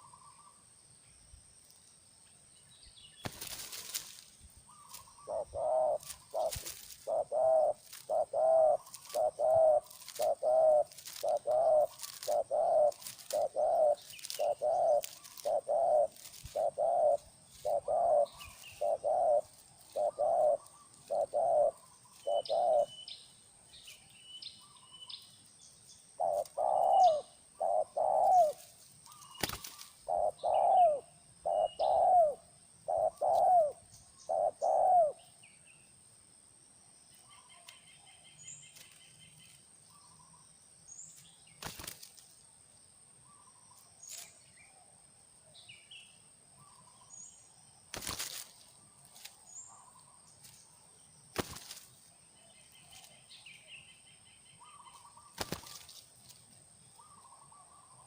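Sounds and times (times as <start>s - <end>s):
small birds chirping: 0.0s - 36.0s, 37.1s - 42.5s, 43.1s - 58.0s
dove cooing: 4.7s - 23.1s, 26.2s - 35.2s.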